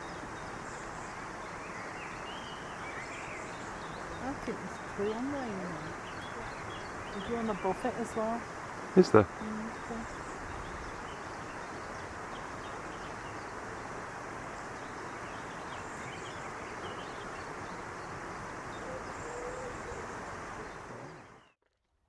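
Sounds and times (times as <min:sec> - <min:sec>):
faint bird chirps: 0:00.0 - 0:21.5.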